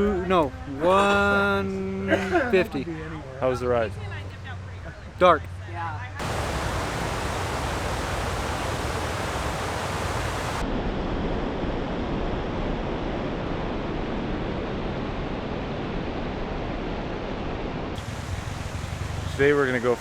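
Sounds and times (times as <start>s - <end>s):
steady rushing noise: 6.2s - 10.6s, 18.0s - 20.0s.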